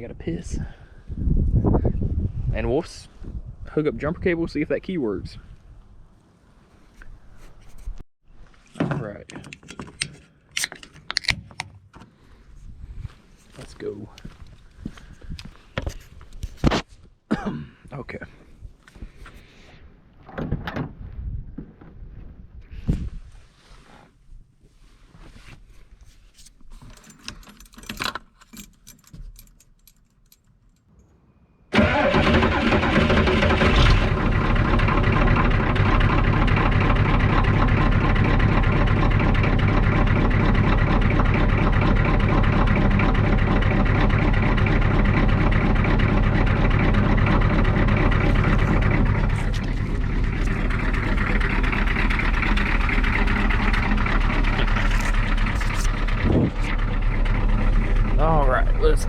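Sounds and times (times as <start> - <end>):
diesel engine starting and idling: 31.7 - 59.0.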